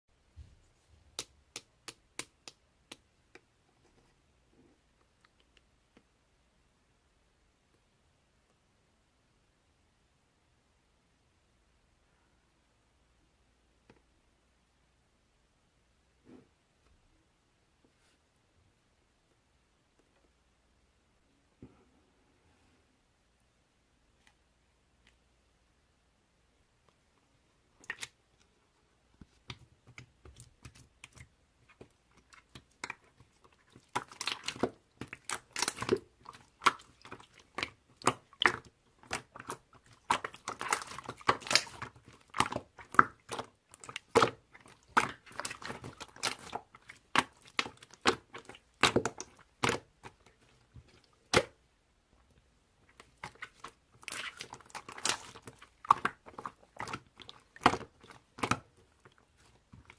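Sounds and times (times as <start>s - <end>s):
crackling and crunching: 29.4s - 51.6s, 52.9s - 59.9s.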